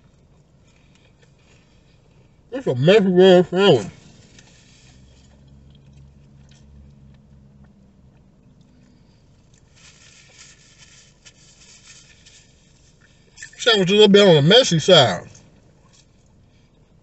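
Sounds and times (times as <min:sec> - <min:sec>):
chewing: 0:00.0 - 0:02.4, 0:04.3 - 0:10.4
low steady hum: 0:00.0 - 0:17.0
paper wrapper rustling: 0:09.7 - 0:13.0.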